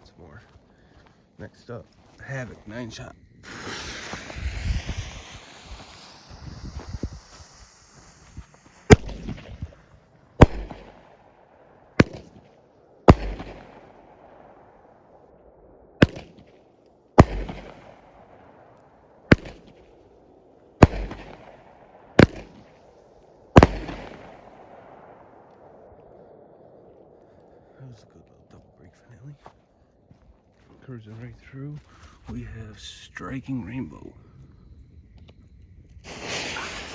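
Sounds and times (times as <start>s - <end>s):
fireworks hissing: 2.9s - 11.1s, 20.8s - 21.6s, 22.2s - 24.5s, 36.0s - 36.9s
fireworks bangs echoing: 3.4s - 14.8s, 16.0s - 27.2s, 36.0s - 36.9s.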